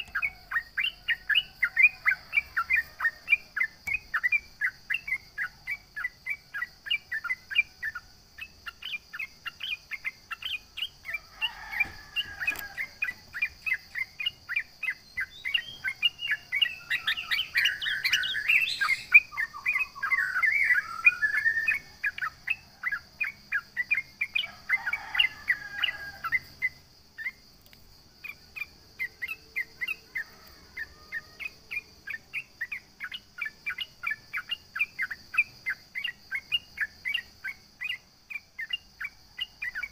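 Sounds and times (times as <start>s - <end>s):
bird chirping rapidly: 0.0s - 27.4s.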